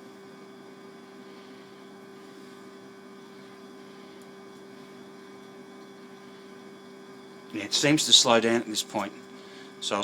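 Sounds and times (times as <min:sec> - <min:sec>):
sump pump humming: 0:00.0 - 0:10.0.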